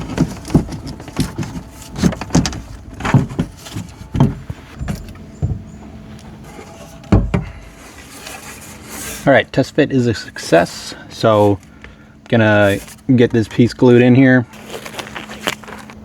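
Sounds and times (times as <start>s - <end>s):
plastic pipes thumping and clacking: 0.0s - 9.1s.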